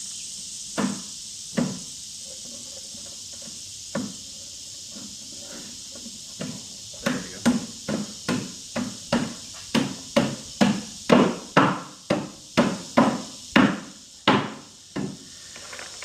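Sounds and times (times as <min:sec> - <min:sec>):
sharp wooden knocks: 0:06.4 - 0:15.2.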